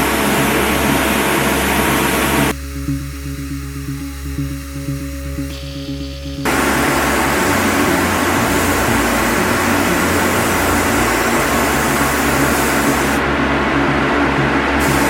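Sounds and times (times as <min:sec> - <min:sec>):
background music: 0:00.0 - 0:15.0
loud steady rushing hiss: 0:00.0 - 0:15.0.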